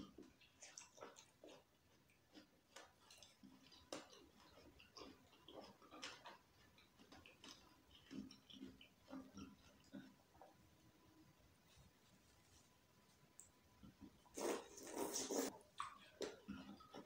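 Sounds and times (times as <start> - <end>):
wet chewing crunches: 0.0 - 10.2.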